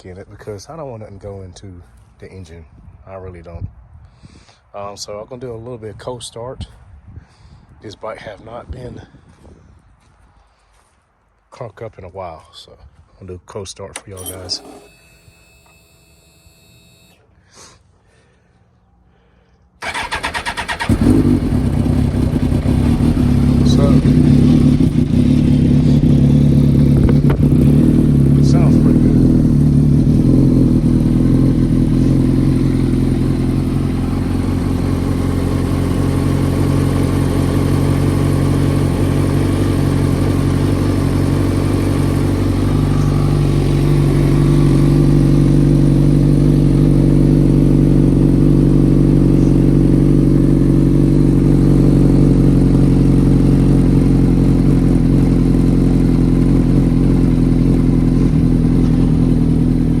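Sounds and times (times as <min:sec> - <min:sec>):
motorcycle engine idling: 0:19.8 - 1:00.0.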